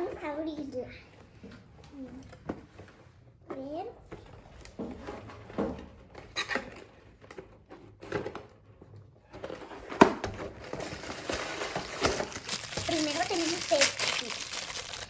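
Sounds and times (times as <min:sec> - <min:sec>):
packaging rustling: 0:10.4 - 0:15.0.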